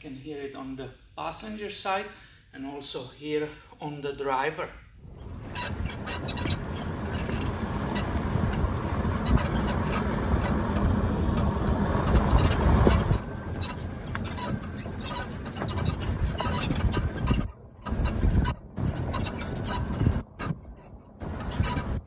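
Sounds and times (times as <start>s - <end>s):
car rumbling over bumps: 5.0s - 22.0s
car suspension squeaking: 5.0s - 22.0s.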